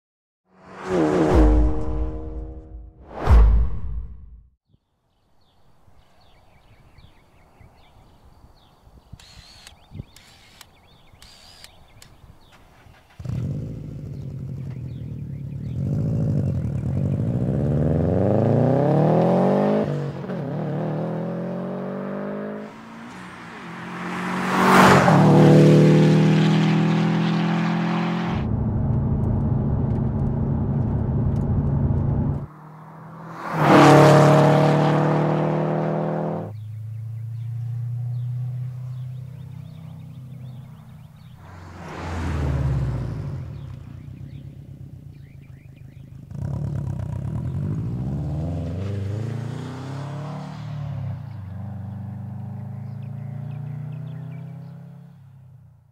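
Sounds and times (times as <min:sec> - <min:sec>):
car passing close: 0:00.5 - 0:02.7, 0:12.4 - 0:55.2
car engine accelerating hard: 0:13.0 - 0:55.1.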